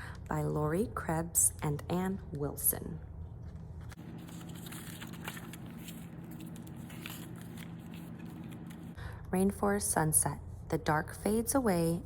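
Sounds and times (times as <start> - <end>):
low electrical hum: 0.0 - 12.0
pages turning: 3.5 - 9.0
paper rustling and crackling: 3.8 - 9.0.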